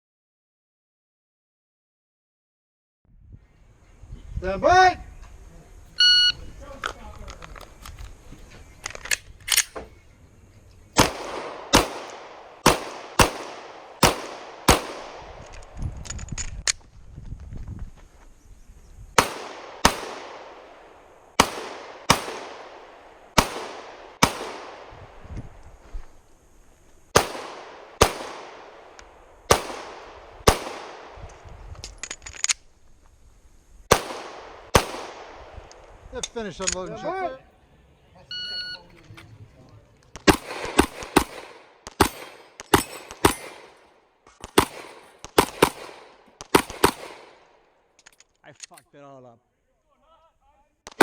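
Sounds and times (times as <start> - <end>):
pistol shots: 11.0 - 15.6, 19.2 - 25.0, 27.1 - 31.4, 33.9 - 35.7, 40.2 - 47.7.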